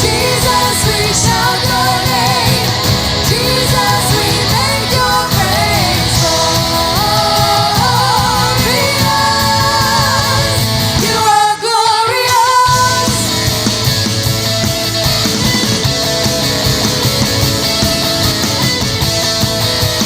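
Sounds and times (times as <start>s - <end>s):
person singing: 0.0s - 13.7s
rock band playing: 0.0s - 20.0s.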